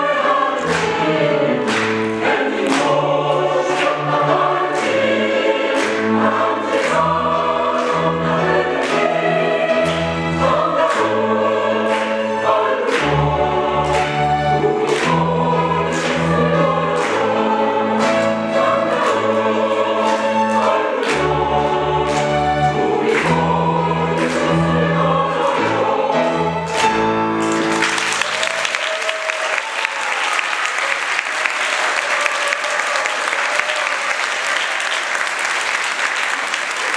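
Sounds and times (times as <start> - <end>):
choir singing in harmony: 0.0 - 28.5
instrumental accompaniment: 0.0 - 28.6
audience applause: 0.6 - 9.1, 26.7 - 36.9.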